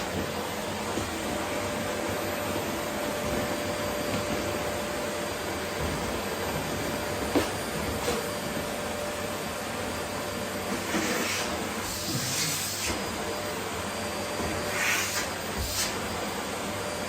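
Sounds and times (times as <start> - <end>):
vacuum cleaner running: 0.0 - 17.0
hissing rushes of suction: 14.6 - 16.1.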